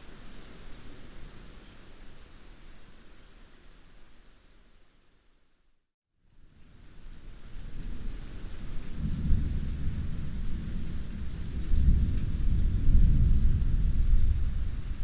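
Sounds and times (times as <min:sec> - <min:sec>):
heavy rain hissing: 0:06.4 - 0:15.0
rolling thunder rumble: 0:07.7 - 0:15.0.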